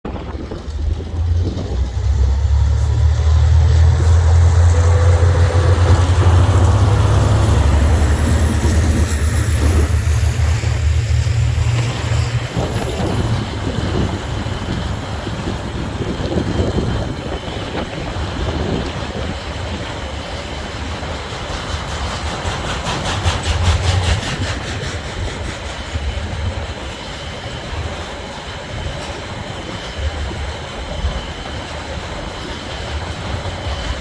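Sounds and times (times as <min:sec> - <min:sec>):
deep locomotive engine drone: 0:00.0 - 0:34.0
wagons rumbling on rails: 0:00.0 - 0:34.0.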